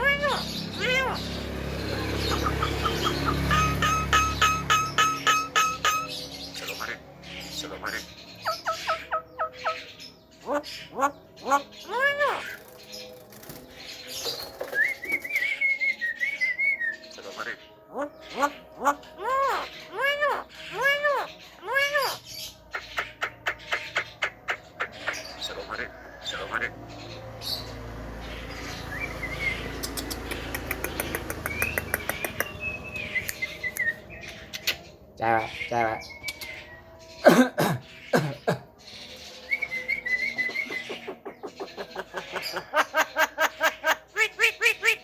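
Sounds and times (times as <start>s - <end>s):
myna calling: 0.0s - 12.7s
warbled bird whistle: 2.4s - 6.1s
bird sharp clicks: 29.8s - 34.7s.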